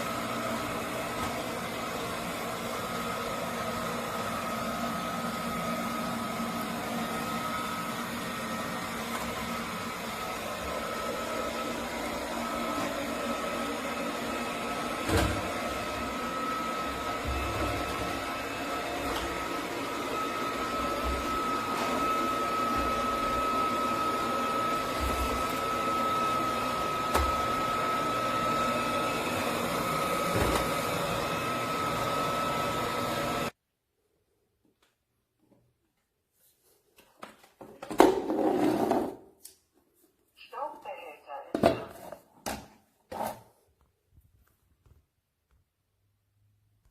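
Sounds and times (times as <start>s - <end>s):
robot vacuum whirring: 0.0s - 33.5s.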